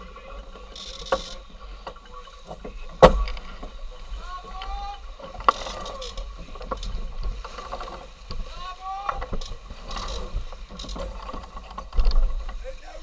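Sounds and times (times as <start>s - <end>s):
deck gear clicks and knocks: 0.6s - 3.7s, 9.1s - 12.6s.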